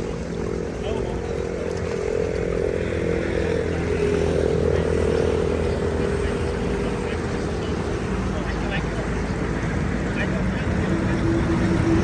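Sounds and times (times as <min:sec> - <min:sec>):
broad rushing noise: 0:00.0 - 0:12.0
engine running steadily: 0:00.0 - 0:12.0.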